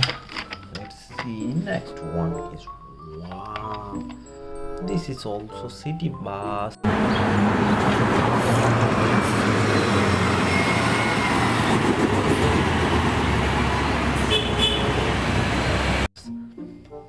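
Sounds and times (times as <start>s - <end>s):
bus engine running: 6.8s - 16.1s
street traffic: 6.8s - 16.1s.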